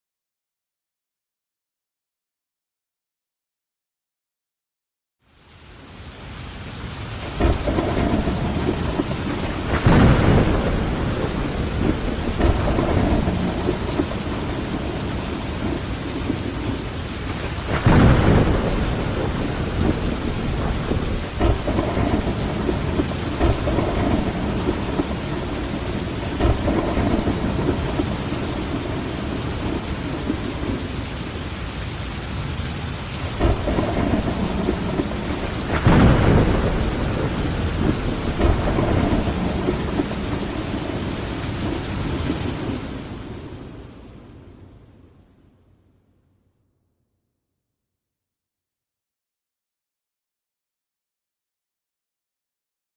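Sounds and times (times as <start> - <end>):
rain on a window pane: 5.2 - 45.8
thunder rumbling: 6.4 - 45.1.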